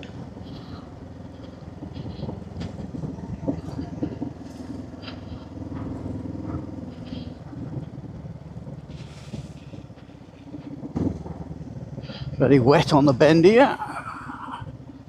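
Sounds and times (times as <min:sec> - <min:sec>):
wind noise: 0:00.0 - 0:13.2
motorcycle engine running: 0:00.0 - 0:15.0
road noise: 0:00.0 - 0:15.0.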